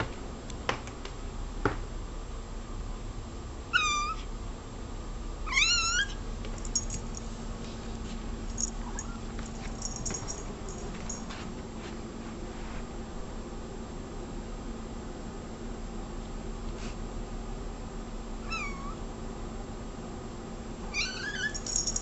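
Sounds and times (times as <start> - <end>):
cat meowing: 3.7 - 4.3, 5.5 - 6.2, 18.4 - 19.0, 20.9 - 21.6.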